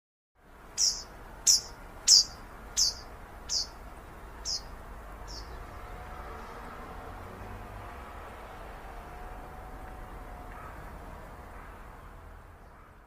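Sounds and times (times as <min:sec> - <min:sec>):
bird chirping: 0:00.7 - 0:05.8.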